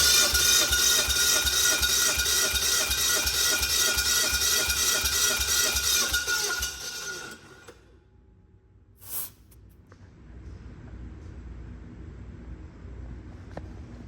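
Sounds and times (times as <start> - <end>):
engine cranking on starter: 0.0 - 7.8
short hiss: 9.0 - 9.6.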